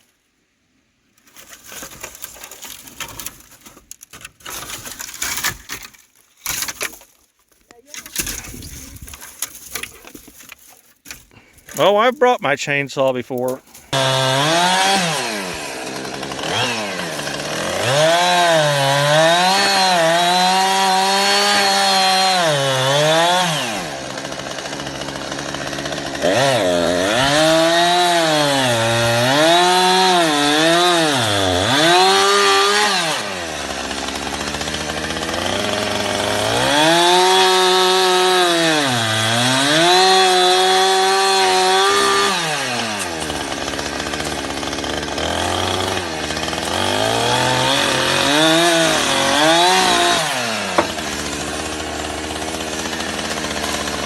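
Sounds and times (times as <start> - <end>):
chainsaw running: 13.8 - 54.0.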